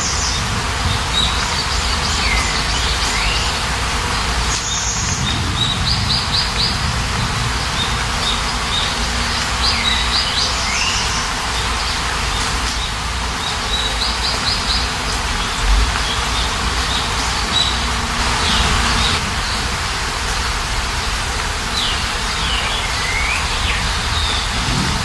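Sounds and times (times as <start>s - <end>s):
small birds chirping: 0.0s - 19.8s, 21.7s - 25.0s
steady rain: 0.0s - 25.0s.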